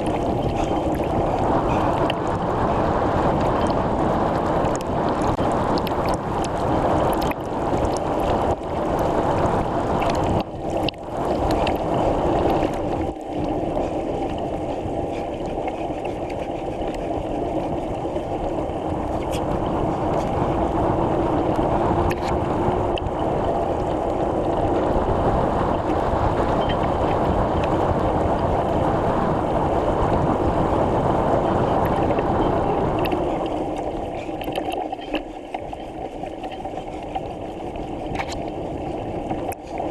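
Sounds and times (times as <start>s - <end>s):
bicycle tyre noise: 0.0s - 39.9s
constant low hum: 0.0s - 39.9s
wind rushing over microphone: 0.0s - 39.9s.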